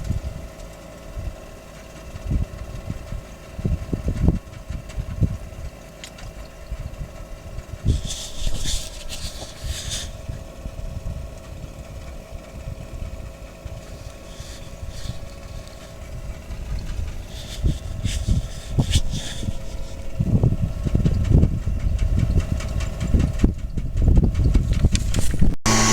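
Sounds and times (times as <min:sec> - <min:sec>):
small gasoline engine running: 0:00.0 - 0:25.9
bursts of hissing: 0:07.8 - 0:10.4, 0:13.8 - 0:20.2.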